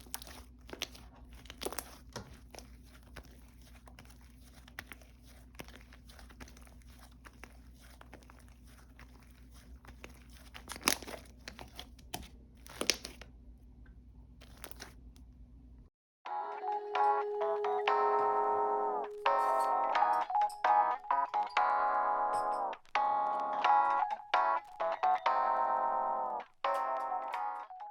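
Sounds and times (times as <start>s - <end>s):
slime squished by hand: 0.0s - 13.4s, 14.4s - 15.3s.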